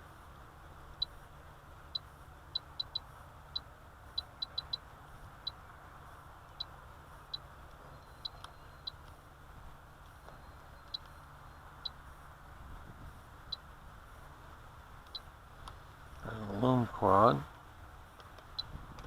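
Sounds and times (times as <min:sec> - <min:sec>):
short electronic beeps: 0:02.0 - 0:03.1, 0:04.2 - 0:04.8, 0:07.3 - 0:09.0, 0:10.4 - 0:12.0.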